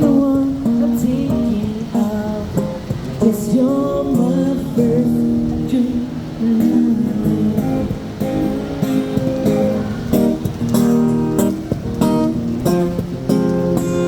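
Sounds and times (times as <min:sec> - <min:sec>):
person singing: 0:00.0 - 0:08.4
acoustic guitar strumming: 0:00.0 - 0:14.0.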